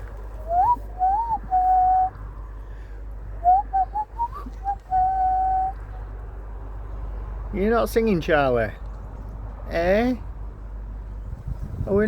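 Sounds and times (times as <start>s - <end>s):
person whistling: 0.4s - 2.2s, 3.4s - 5.8s.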